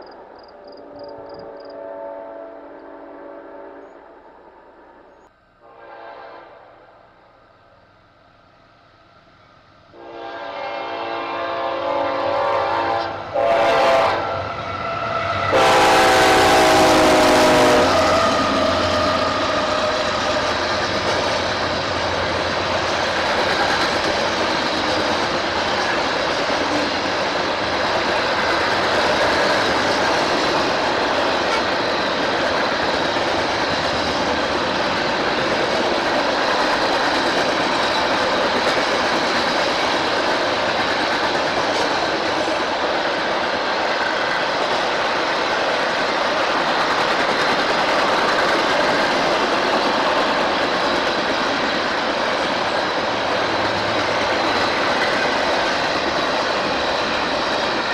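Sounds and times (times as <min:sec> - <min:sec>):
locomotive horn: 0:00.8 - 0:04.0, 0:05.6 - 0:06.9, 0:09.9 - 0:20.0
train cars rolling on rails: 0:07.0 - 0:57.9.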